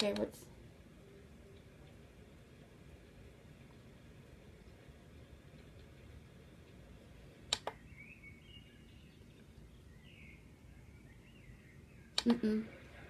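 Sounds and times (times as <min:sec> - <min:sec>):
low hiss: 0:00.0 - 0:13.0
faint bird-like chirps from speaker: 0:07.7 - 0:13.0.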